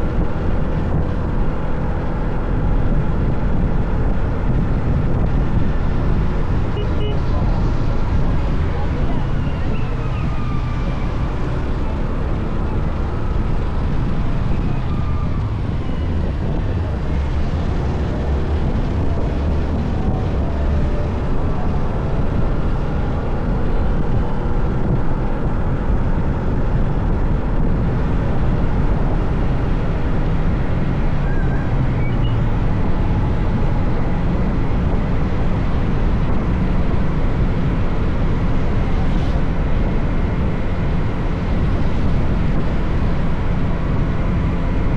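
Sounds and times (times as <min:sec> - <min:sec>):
road noise: 0:00.0 - 0:44.9
wind on microphone: 0:00.0 - 0:44.9.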